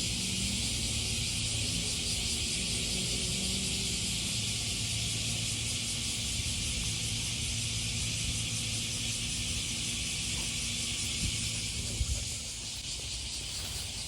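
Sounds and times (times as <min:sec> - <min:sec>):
cicadas buzzing: 0:00.0 - 0:14.0.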